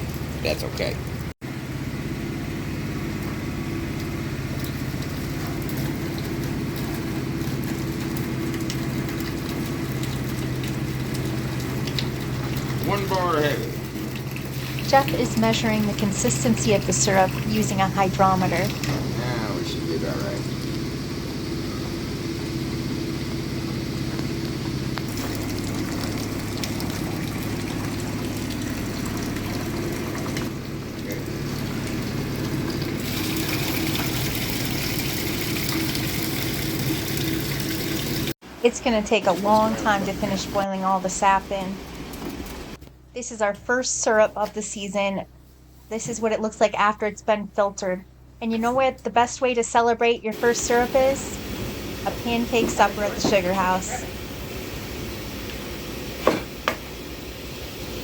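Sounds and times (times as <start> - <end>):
low machine hum: 0.0 - 58.0
noisy rush: 50.3 - 55.9.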